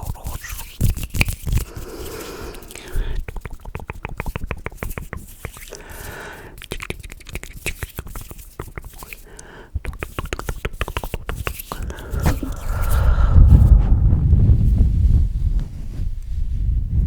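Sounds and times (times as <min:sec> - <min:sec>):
wet mouth clicks and smacks: 0:00.0 - 0:13.7
soft breaths: 0:01.6 - 0:03.3, 0:05.7 - 0:06.6, 0:09.1 - 0:09.8, 0:11.7 - 0:17.0.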